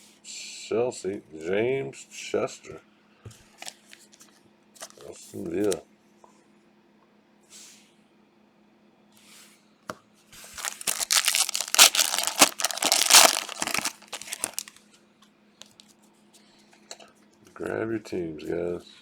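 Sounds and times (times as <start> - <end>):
foil wrapper tearing and crinkling: 10.5 - 14.8.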